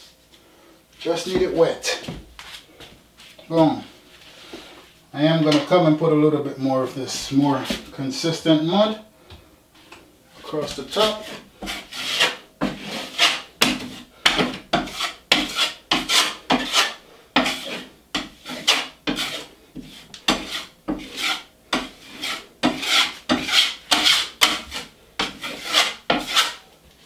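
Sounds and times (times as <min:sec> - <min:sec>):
taping knife scraping joint compound: 0:05.4 - 0:05.7, 0:10.4 - 0:26.6.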